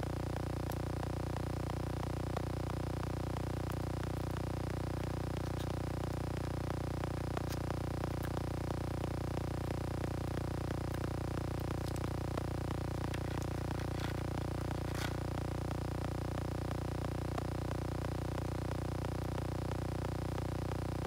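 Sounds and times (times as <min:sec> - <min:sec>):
low electrical hum: 0:00.0 - 0:21.0
faint small ticks: 0:00.5 - 0:01.0, 0:03.5 - 0:09.0, 0:09.6 - 0:15.4.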